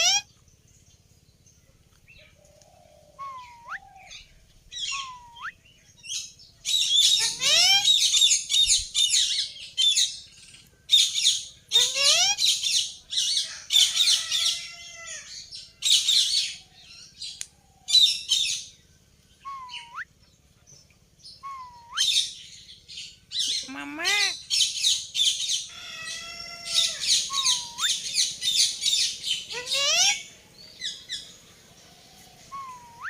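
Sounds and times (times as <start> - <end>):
parrots whistling: 0.0 - 0.2, 3.2 - 3.9, 4.8 - 5.6, 6.7 - 8.7, 11.7 - 12.8, 19.4 - 20.1, 21.4 - 22.3, 23.4 - 24.7, 25.3 - 30.3, 32.5 - 33.0
parrots chirping rapidly: 0.0 - 0.3, 6.1 - 10.2, 10.9 - 14.6, 21.4 - 30.3.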